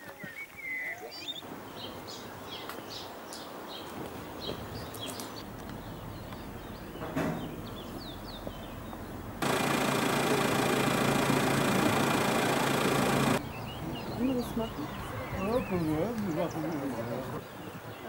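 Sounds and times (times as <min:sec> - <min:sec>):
steady outdoor hiss: 0:00.0 - 0:18.0
small birds chirping: 0:00.1 - 0:18.0
engine hum: 0:05.4 - 0:17.4.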